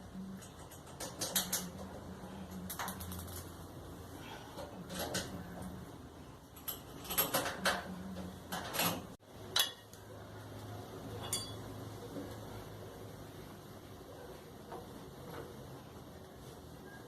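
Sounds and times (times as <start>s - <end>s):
low steady hum: 0.0s - 17.0s
metal tools clinking: 11.1s - 11.7s.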